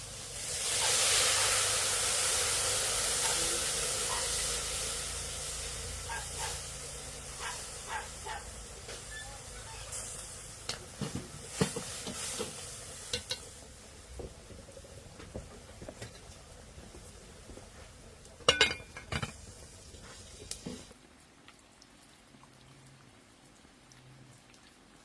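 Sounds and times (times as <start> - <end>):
frying sizzle: 0.0 - 21.8
metal utensils clinking on pots: 11.6 - 13.5, 18.4 - 19.4.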